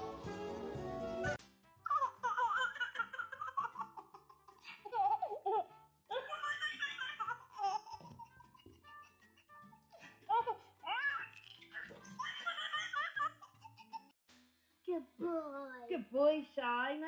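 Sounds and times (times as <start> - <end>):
background music: 0.0 - 17.0
baby laughing: 1.9 - 14.2.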